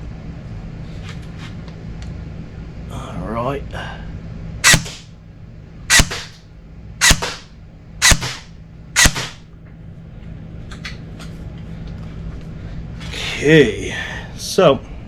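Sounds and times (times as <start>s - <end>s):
airsoft gun shots: 4.6s - 5.1s, 5.9s - 6.4s, 7.0s - 9.4s.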